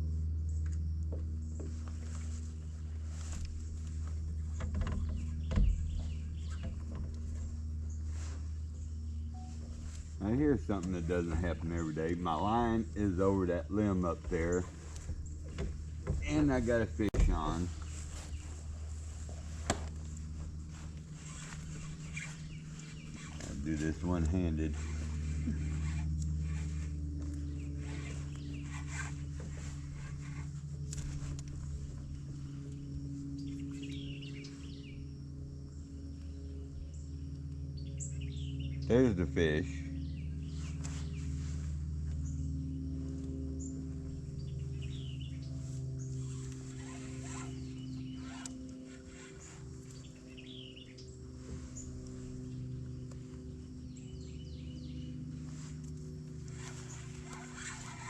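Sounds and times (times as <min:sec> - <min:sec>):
small motor humming: 0:00.0 - 0:58.0
knocks and rustles: 0:00.6 - 0:08.5, 0:14.0 - 0:24.2
faint rustles: 0:01.3 - 0:34.8, 0:40.2 - 0:58.0
birds chirping and calling: 0:04.5 - 0:08.3, 0:09.1 - 0:19.3, 0:20.7 - 0:30.6, 0:32.0 - 0:35.0, 0:44.0 - 0:55.7, 0:56.5 - 0:58.0.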